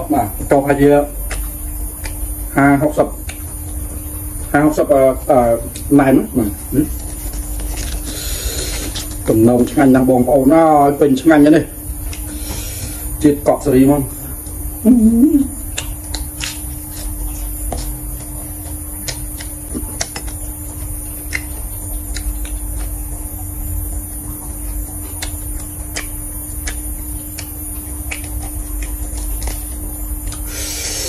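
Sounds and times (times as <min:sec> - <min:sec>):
chewing crisp lettuce: 0:00.7 - 0:11.0, 0:11.9 - 0:13.3, 0:14.1 - 0:31.0
mouth clicks: 0:18.2 - 0:20.6, 0:21.2 - 0:23.0, 0:25.1 - 0:31.0.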